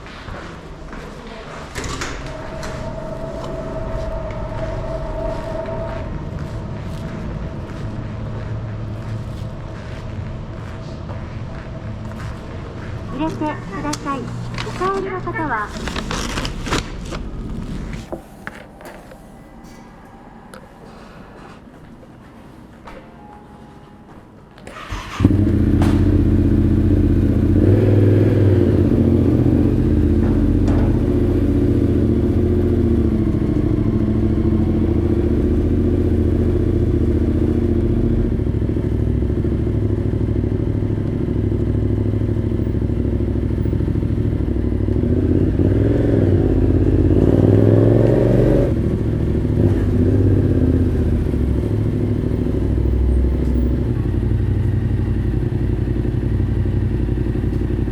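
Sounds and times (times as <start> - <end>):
motorcycle engine starting and idling: 24.6 - 57.9.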